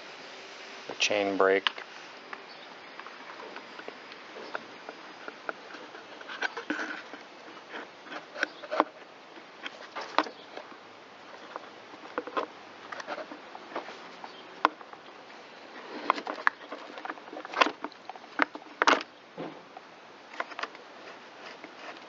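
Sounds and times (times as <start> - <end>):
plastic and metal parts clicking: 15.9 - 19.1, 20.3 - 22.0.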